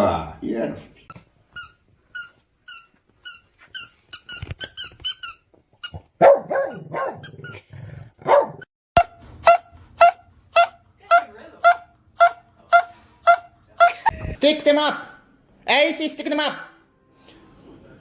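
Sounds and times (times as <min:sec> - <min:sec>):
dog barking: 0:06.2 - 0:07.6, 0:08.2 - 0:08.7.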